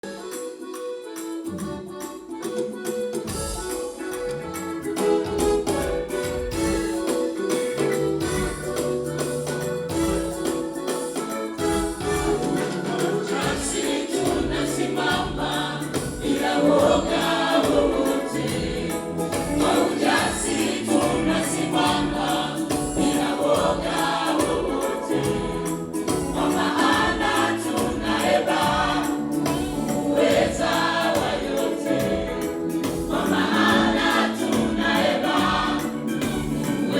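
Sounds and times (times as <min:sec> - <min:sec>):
choir singing gospel: 0:00.0 - 0:36.9
instrumental accompaniment with beat: 0:00.0 - 0:36.9.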